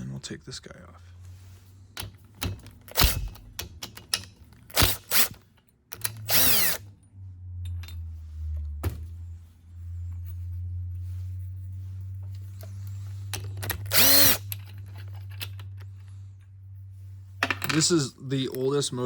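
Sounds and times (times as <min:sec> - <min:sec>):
metal parts clicking: 0:02.0 - 0:06.8, 0:13.3 - 0:16.1
power tool spinning fasteners: 0:02.0 - 0:06.9, 0:13.3 - 0:15.8.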